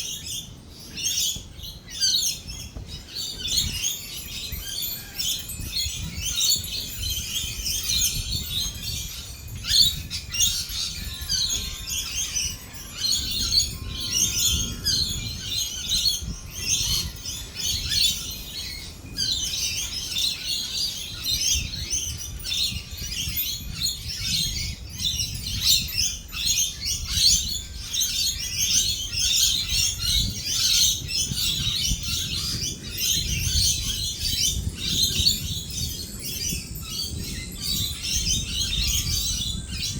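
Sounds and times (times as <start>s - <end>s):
parrots chattering and screeching: 9.0s - 18.1s.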